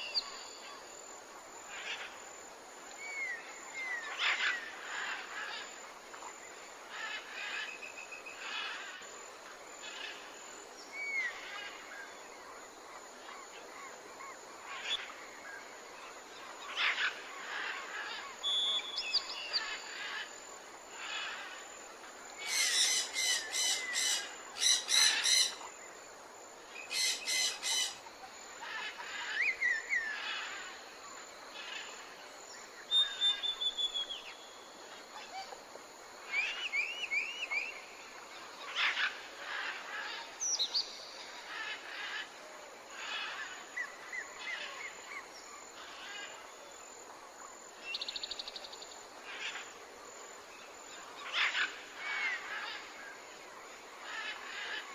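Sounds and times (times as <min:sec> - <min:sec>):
faint steady hiss: 0:00.0 - 0:54.9
birds whistling and chirping: 0:32.9 - 0:34.3.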